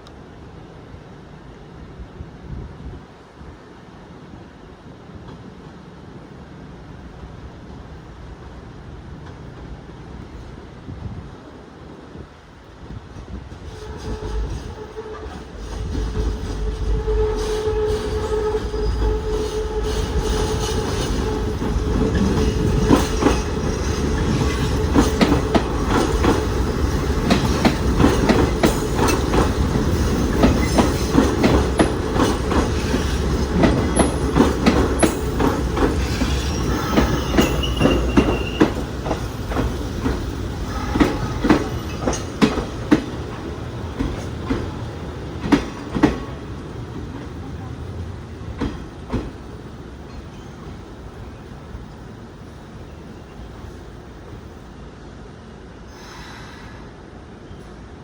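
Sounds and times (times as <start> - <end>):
electric train hum and rumble: 0.0 - 58.0
train wheels clattering over rail joints: 13.2 - 47.4
high wheel squeal: 35.6 - 42.4.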